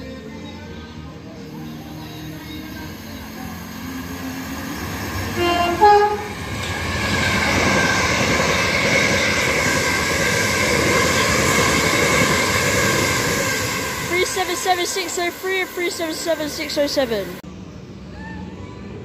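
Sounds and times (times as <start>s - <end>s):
faint train whine: 0.0s - 19.0s
train wheel and rail noise: 0.0s - 19.0s
train horn: 5.2s - 6.4s.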